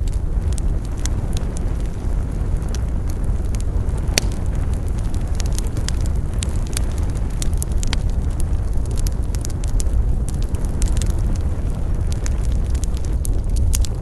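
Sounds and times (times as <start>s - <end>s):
campfire burning: 0.0s - 14.0s
crackles and pops of burning wood: 0.0s - 14.0s.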